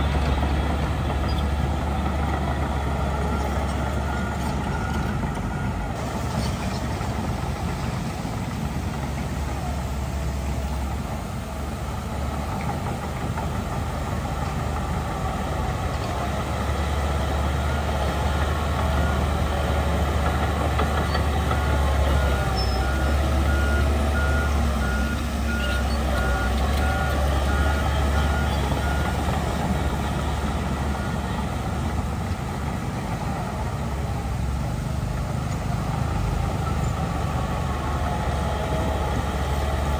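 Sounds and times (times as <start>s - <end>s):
heavy diesel machinery running: 0.0s - 39.9s
reversing alarm beeps: 3.1s - 6.0s, 22.1s - 31.2s.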